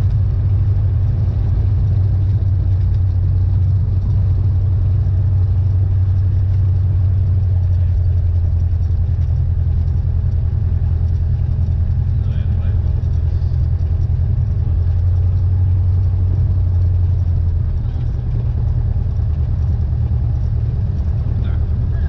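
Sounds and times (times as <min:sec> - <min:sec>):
light aircraft engine and propeller drone: 0:00.0 - 0:22.0.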